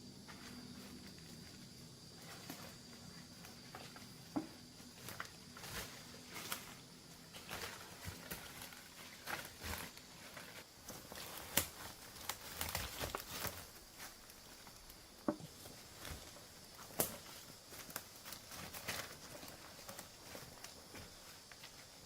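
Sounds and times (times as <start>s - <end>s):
dry leaves rustling: 0.3s - 22.0s
twigs snapping underfoot: 10.9s - 15.0s, 16.0s - 20.8s.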